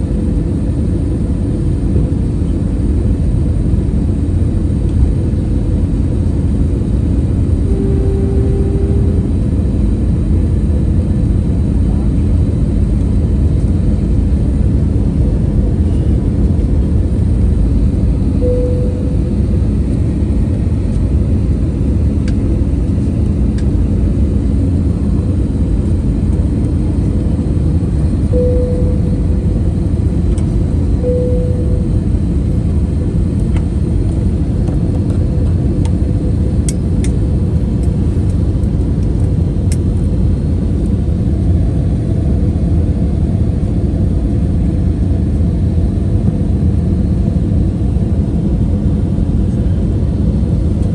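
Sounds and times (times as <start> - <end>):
airliner cabin roar: 0.0 - 50.9
faint steady tones: 7.6 - 10.0, 18.4 - 19.6, 28.2 - 32.7.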